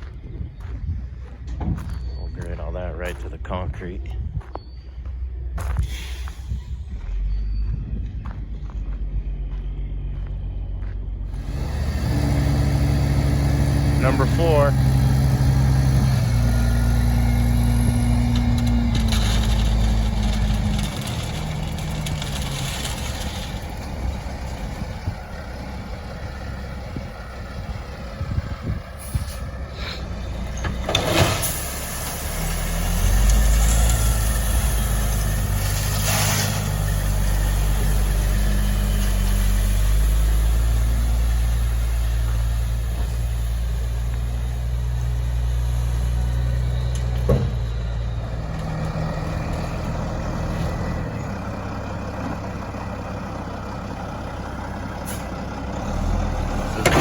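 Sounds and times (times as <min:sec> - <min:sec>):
diesel truck engine running: 0:00.0 - 0:57.0
air brake hiss: 0:05.8 - 0:06.6.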